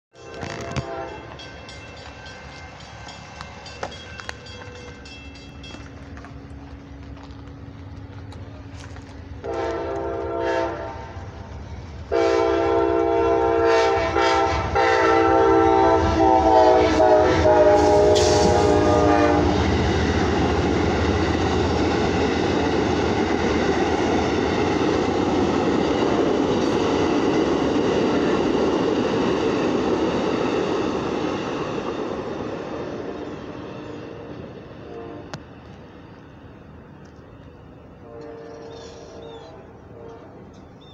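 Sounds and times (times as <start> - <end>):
train air horn blasts: 0.1 - 1.4, 9.4 - 11.4, 12.0 - 19.9, 32.9 - 35.5, 37.8 - 40.6
train cars rumbling on rails: 0.1 - 40.9.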